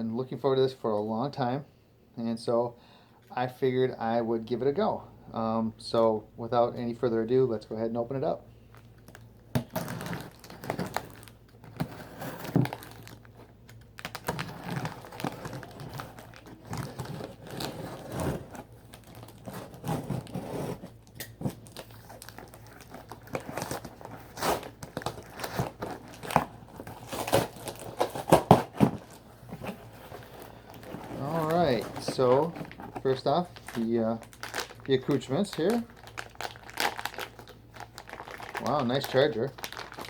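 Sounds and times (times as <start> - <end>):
wrapping crinkling and tearing: 8.7 - 40.0.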